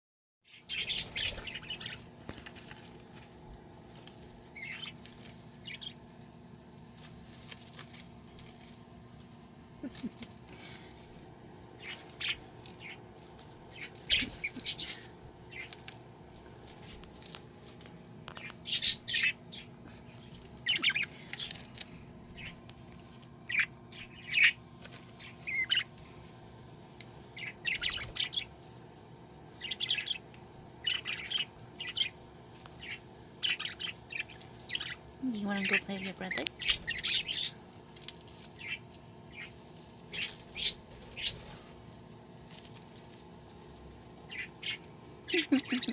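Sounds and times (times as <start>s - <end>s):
budgie chirping and squawking: 0.5s - 2.2s, 4.5s - 6.0s, 11.7s - 15.9s, 18.4s - 21.7s, 22.3s - 22.6s, 23.4s - 24.6s, 25.2s - 26.0s, 27.2s - 28.6s, 29.5s - 37.7s, 38.4s - 41.6s, 44.2s - 45.9s
faint steady hum: 0.5s - 45.9s.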